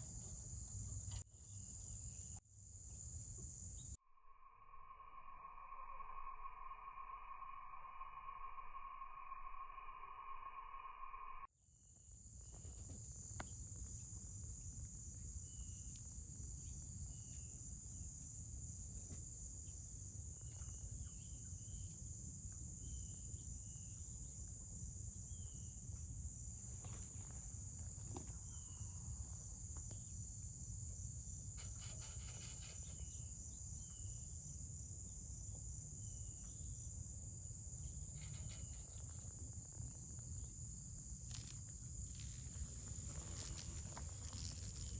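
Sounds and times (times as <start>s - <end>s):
high-pitched insect drone: 12.1s - 44.9s.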